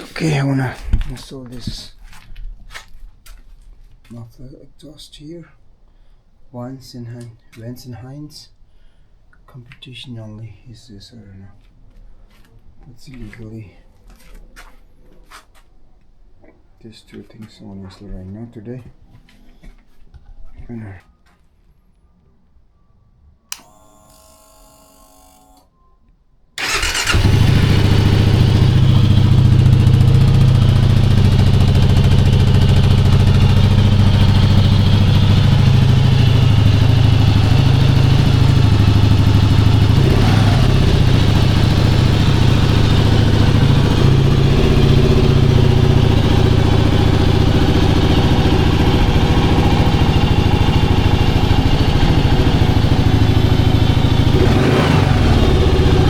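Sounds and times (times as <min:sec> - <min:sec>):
motorcycle engine starting and idling: 0:26.6 - 0:56.0.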